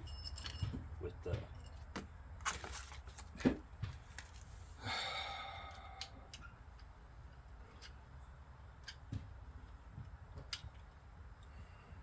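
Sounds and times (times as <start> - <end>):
clicks and knocks of parts handled: 8.8 - 11.5.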